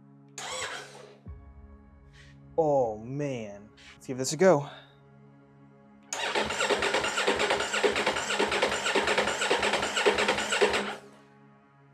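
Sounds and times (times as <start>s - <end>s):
motorcycle engine cranking: 0.4s - 0.9s, 6.2s - 11.0s.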